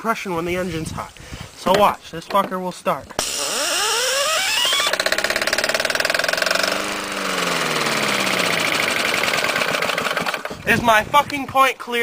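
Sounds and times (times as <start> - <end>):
small engine running: 3.1 - 11.0.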